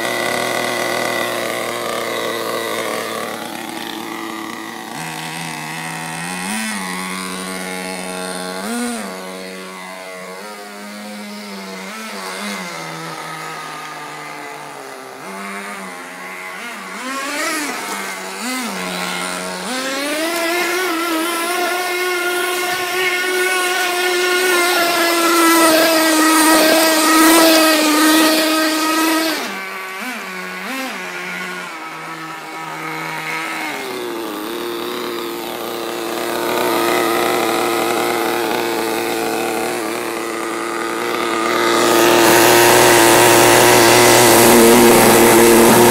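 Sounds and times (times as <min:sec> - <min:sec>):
small nitro engine revving: 0:00.0 - 0:45.9.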